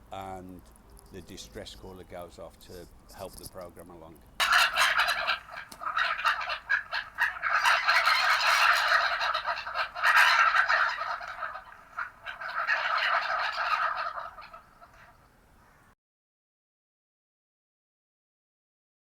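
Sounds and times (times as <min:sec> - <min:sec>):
gulls alarm calls: 0:04.4 - 0:15.9.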